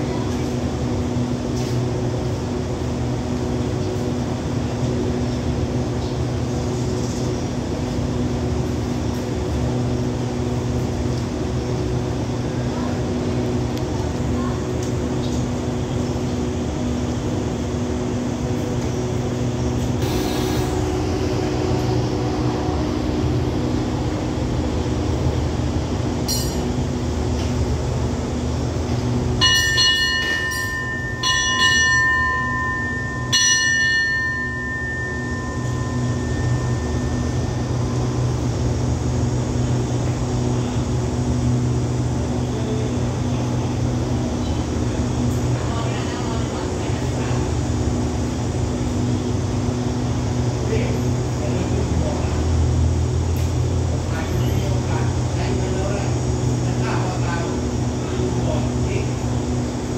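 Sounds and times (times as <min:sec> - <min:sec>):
train engines humming: 0:00.0 - 0:59.9
bell ringing: 0:26.3 - 0:26.8, 0:29.4 - 0:38.1.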